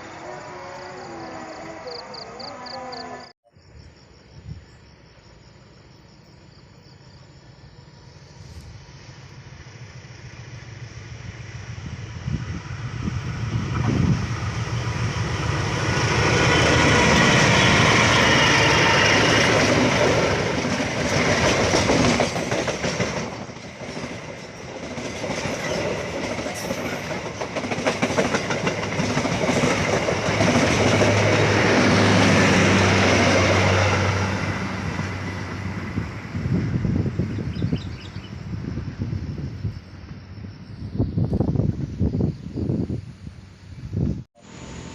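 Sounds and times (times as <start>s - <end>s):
train wheels clattering: 16.0s - 33.6s.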